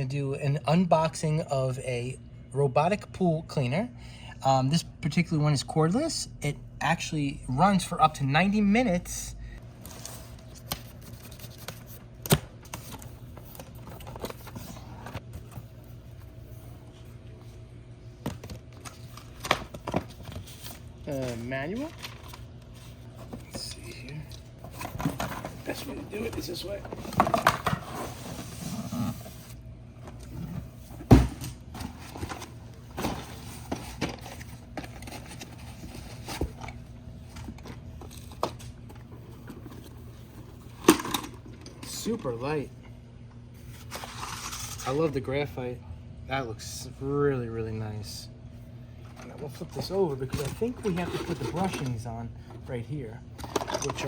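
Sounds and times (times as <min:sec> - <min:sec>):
steady low hum: 0:00.0 - 0:54.0
packaging rustling and scraping: 0:18.4 - 0:31.0, 0:31.7 - 0:42.2, 0:43.6 - 0:45.1, 0:49.5 - 0:52.1.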